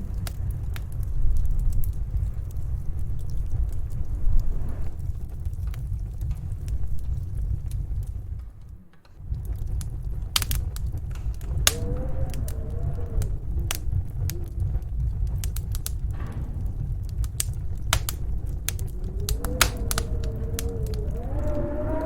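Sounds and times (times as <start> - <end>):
snowstorm wind rumble: 0.0 - 22.0
wood fire crackling and popping: 0.0 - 22.0
wavering wind whistle: 11.2 - 15.1, 17.5 - 22.0.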